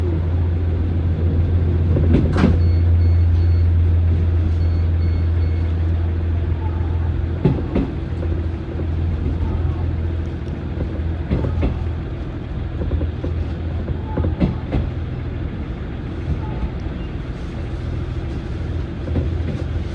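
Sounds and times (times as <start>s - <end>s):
train coach low rumble: 0.0s - 19.9s
wheels clacking over rail joints: 5.8s - 19.9s.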